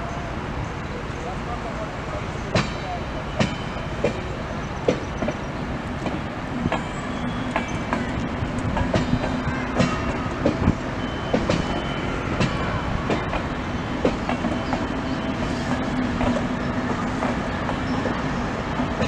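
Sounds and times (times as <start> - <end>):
wheels clicking over rail joints: 3.4 - 14.9.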